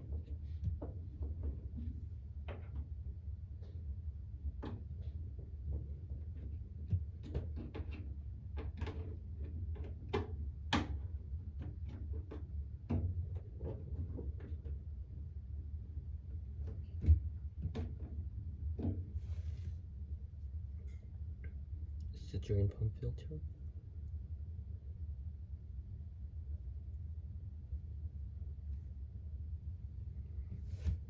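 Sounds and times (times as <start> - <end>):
low steady hum: 0.0 - 31.0
clicks and knocks of plastic filter: 4.6 - 14.8, 16.6 - 19.2.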